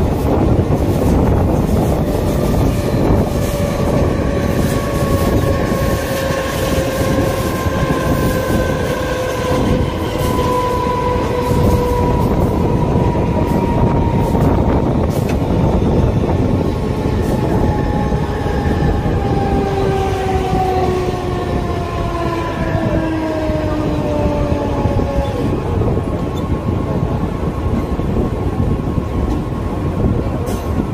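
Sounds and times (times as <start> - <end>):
rushing air: 0.0 - 21.4
train wheels rumbling on rails: 0.0 - 30.9.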